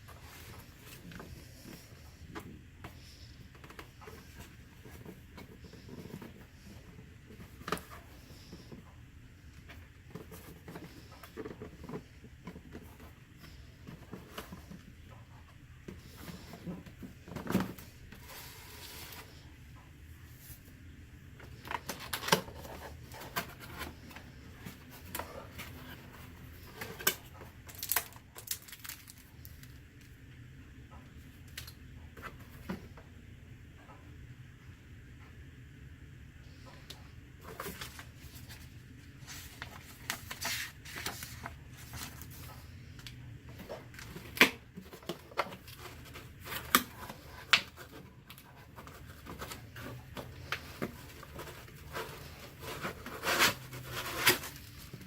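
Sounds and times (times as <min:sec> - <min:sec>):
packaging rustle: 0:37.4 - 0:42.7
packaging rustling: 0:37.4 - 0:42.7, 0:43.5 - 0:55.0.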